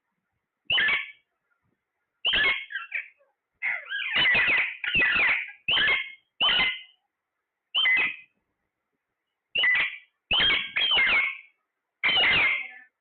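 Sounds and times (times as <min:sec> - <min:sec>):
parrot squawking: 0:00.7 - 0:01.2, 0:02.2 - 0:07.0, 0:07.8 - 0:08.3, 0:09.6 - 0:13.0.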